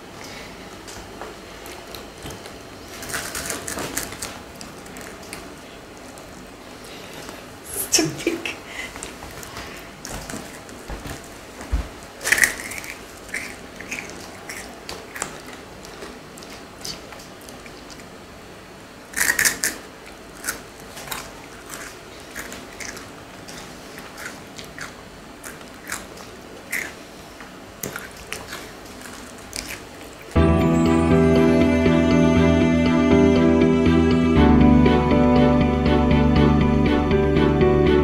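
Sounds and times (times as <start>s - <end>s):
chewing and crunching: 1.6s - 7.5s, 12.1s - 18.2s, 19.2s - 30.4s
music: 30.4s - 38.0s.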